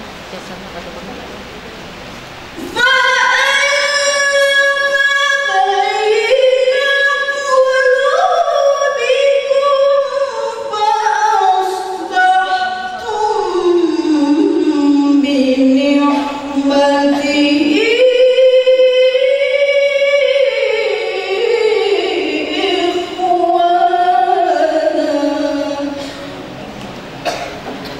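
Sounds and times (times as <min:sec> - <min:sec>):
woman reciting melodically: 0:00.0 - 0:01.9, 0:02.5 - 0:26.4.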